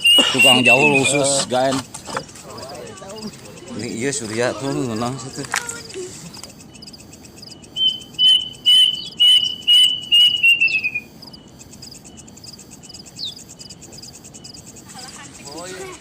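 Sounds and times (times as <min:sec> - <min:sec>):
bird whistling call: 0:00.0 - 0:01.4, 0:05.9 - 0:11.4
insect chirring: 0:00.0 - 0:16.0.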